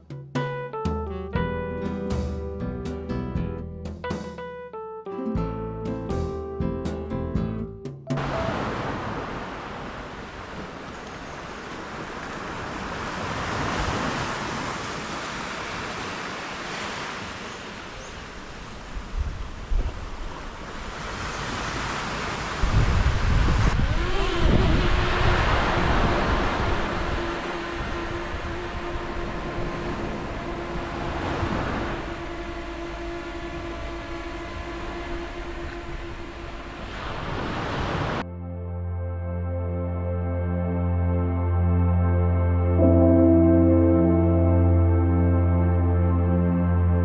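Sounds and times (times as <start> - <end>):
held tone background music: 0.0 - 8.6, 38.3 - 47.0
sea waves washing onto beach: 8.1 - 38.2
wind buffeting microphone: 22.6 - 38.2.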